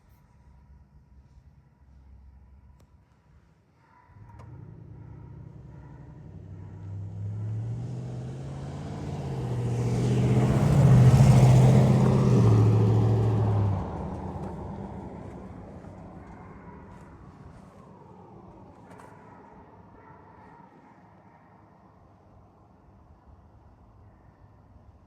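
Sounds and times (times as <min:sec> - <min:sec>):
vehicle passing by: 0:04.2 - 0:21.2.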